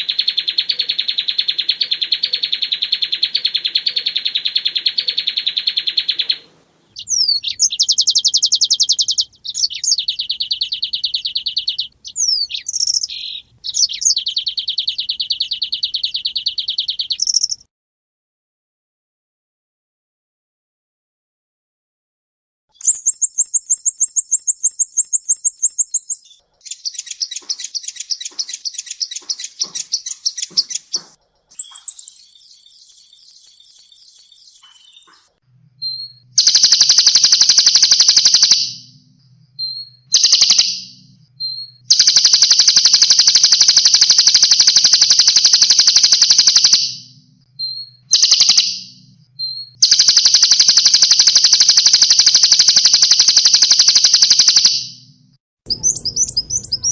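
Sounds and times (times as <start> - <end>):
bird chips: 0.0 - 17.7, 22.8 - 35.4, 55.7 - 56.9
songbird trills: 0.0 - 17.7, 22.8 - 55.1, 55.7 - 56.9.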